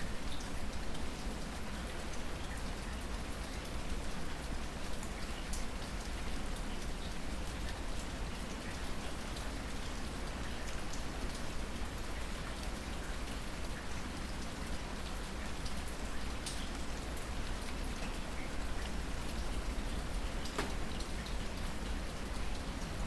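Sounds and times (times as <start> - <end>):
raindrops ticking on a surface: 0.0 - 23.0
rain hissing: 16.0 - 23.0.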